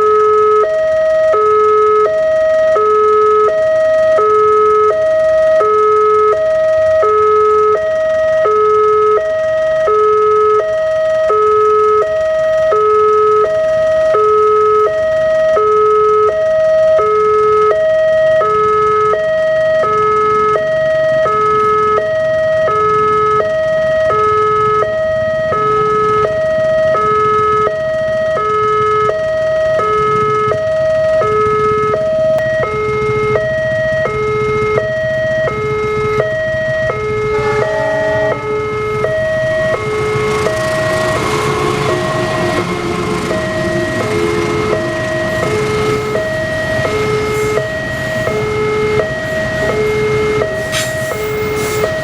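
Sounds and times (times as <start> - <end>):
level crossing two-tone alarm: 0.0 - 52.0
low rumble: 35.6 - 39.9.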